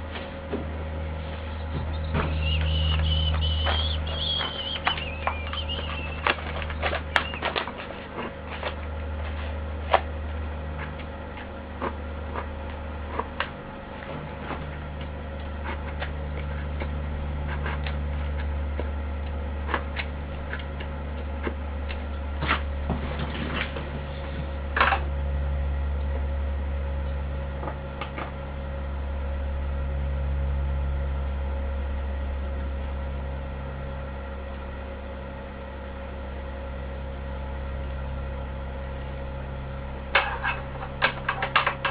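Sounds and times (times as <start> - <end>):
low machine hum: 0.0 - 41.9.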